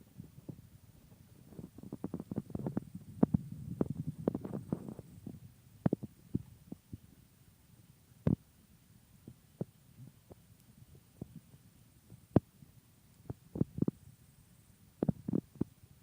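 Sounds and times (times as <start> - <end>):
low rumble: 1.4 - 6.7
campfire crackling and popping: 1.4 - 7.0.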